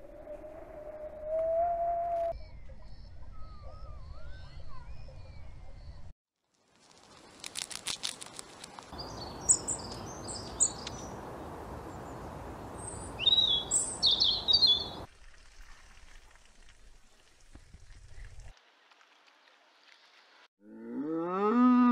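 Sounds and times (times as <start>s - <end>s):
bird chirping: 9.0s - 15.1s.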